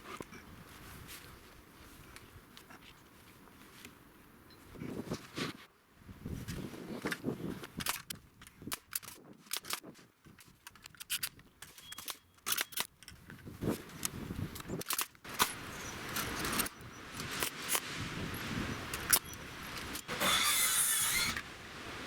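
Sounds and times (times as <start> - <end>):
rough noise: 18.9 - 22.0.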